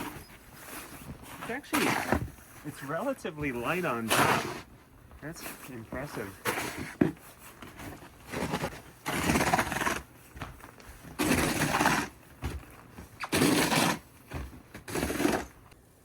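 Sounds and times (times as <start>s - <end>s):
snow shovel scraping snow: 0.0s - 4.7s, 5.3s - 7.0s, 8.3s - 10.0s, 11.2s - 12.2s, 13.3s - 14.0s, 14.9s - 15.5s.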